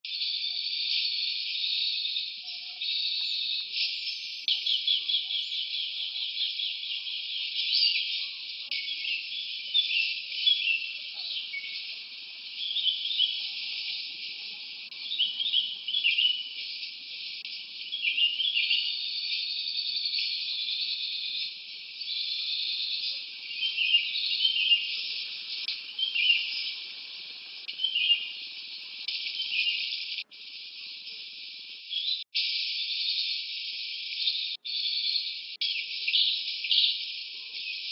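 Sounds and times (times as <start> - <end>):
chirps and trills: 0.1 - 37.9
high insect drone: 5.2 - 31.9.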